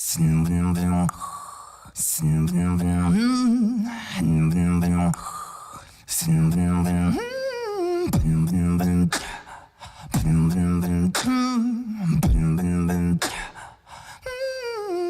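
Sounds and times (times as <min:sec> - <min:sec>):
beatboxed buzzing bass line: 0:08.1 - 0:09.3, 0:10.1 - 0:11.4, 0:12.1 - 0:13.4
beatboxing kick hits: 0:08.1 - 0:09.5, 0:10.1 - 0:11.4, 0:12.1 - 0:13.6.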